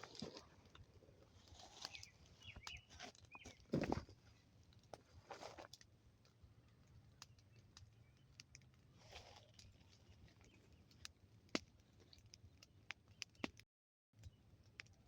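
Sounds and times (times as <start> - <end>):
campfire crackling: 4.2 - 13.6
fire pops and snaps: 10.4 - 13.6.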